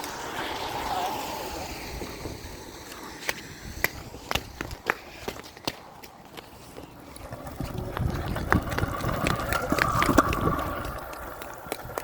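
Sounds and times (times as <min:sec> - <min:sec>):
tyre hiss on wet pavement: 0:00.0 - 0:06.0.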